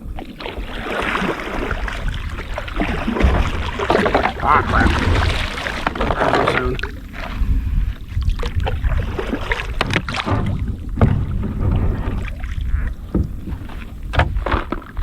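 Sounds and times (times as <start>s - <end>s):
water splashing: 0.0s - 15.0s
low rumble: 2.1s - 9.3s, 10.1s - 14.5s
knocks against kayak hull: 2.8s - 6.9s, 8.4s - 15.0s.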